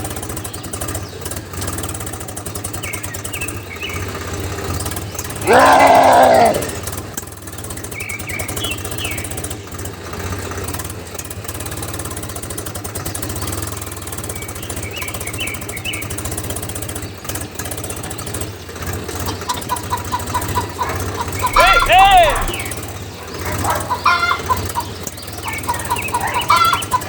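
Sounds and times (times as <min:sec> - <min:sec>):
birds chirping: 0:19.2 - 0:27.0.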